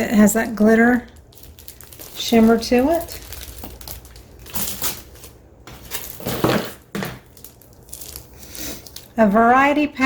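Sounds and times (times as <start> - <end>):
packs rustling and knocking: 1.3 - 9.1.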